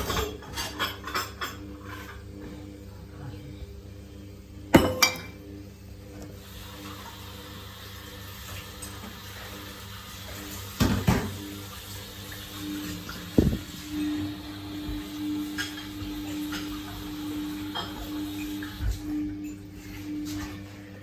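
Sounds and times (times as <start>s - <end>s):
water sloshing in washing machine: 6.3s - 21.0s
motor hum: 10.3s - 21.0s.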